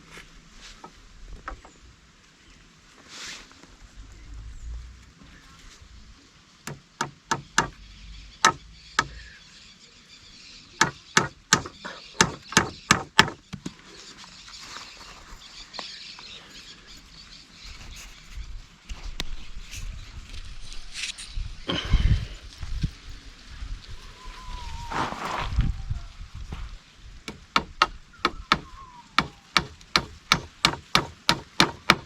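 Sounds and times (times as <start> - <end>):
tool chopping wood: 6.7 - 7.8, 8.4 - 9.2, 10.8 - 13.7, 27.3 - 32.0.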